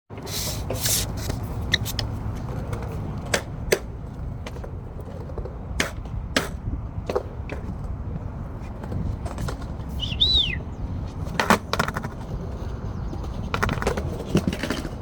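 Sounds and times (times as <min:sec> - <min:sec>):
skateboard clacking on ground: 0:00.1 - 0:15.0
skateboard rolling on concrete: 0:00.1 - 0:15.0
wind on microphone: 0:04.3 - 0:15.0.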